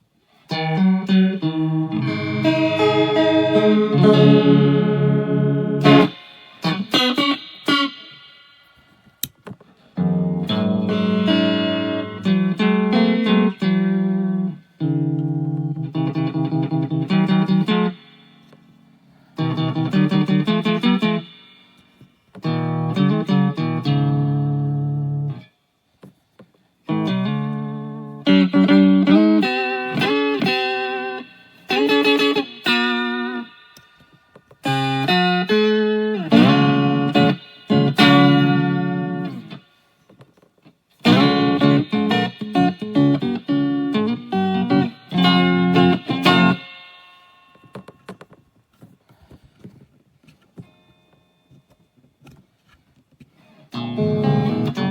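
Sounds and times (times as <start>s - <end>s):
clean guitar chords strummed: 0.5s - 8.4s, 10.0s - 18.4s, 19.4s - 21.6s, 22.4s - 25.5s, 34.6s - 39.6s, 41.0s - 47.8s, 53.8s - 54.9s.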